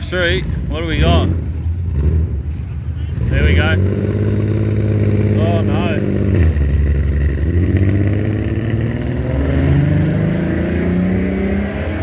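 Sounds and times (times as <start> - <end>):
car engine revving hard: 3.1 - 12.0.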